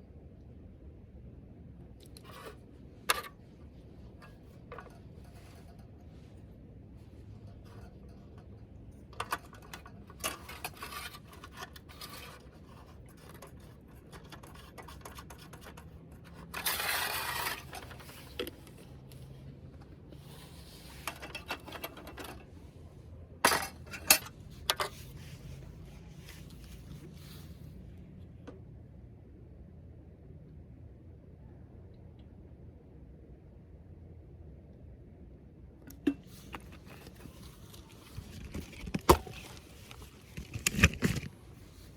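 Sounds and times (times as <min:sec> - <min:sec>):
rustling: 0:36.1 - 0:41.9.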